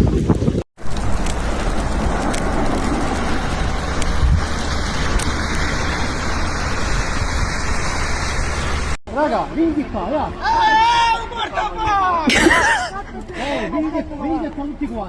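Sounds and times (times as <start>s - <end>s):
vehicle engine and tyres rushing: 0.0s - 10.9s.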